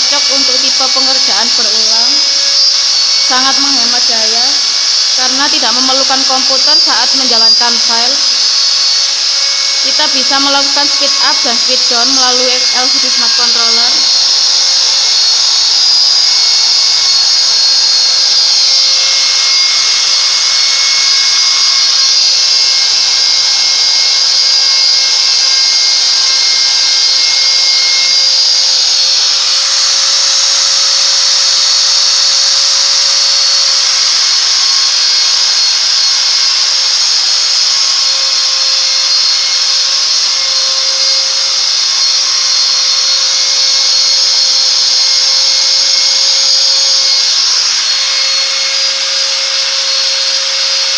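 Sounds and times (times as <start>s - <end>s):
spindle motor high-pitched whine: 0.0s - 50.9s.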